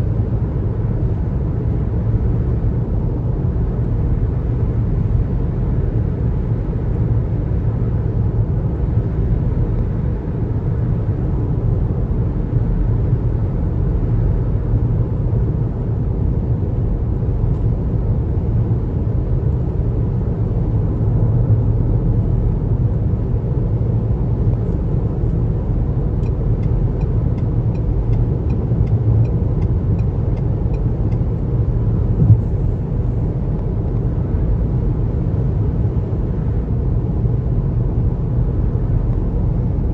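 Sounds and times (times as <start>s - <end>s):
road and tyre noise: 0.0s - 39.9s
short thump: 32.2s - 32.8s.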